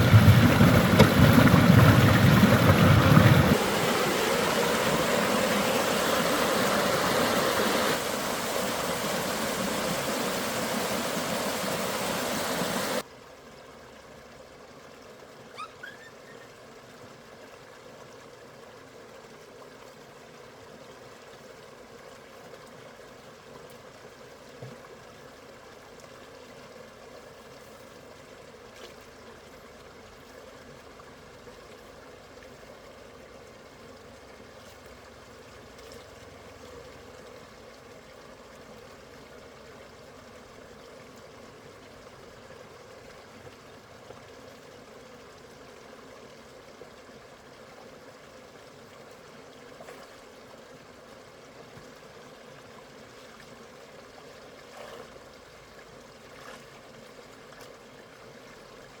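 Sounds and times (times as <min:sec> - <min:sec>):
water running: 0:00.0 - 0:13.0.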